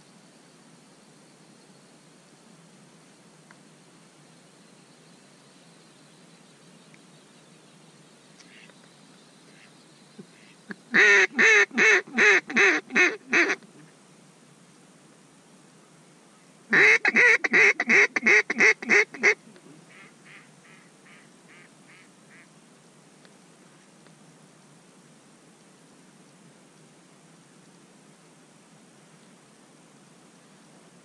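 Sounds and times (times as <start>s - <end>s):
duck call quacking: 10.4s - 13.6s, 16.7s - 22.5s.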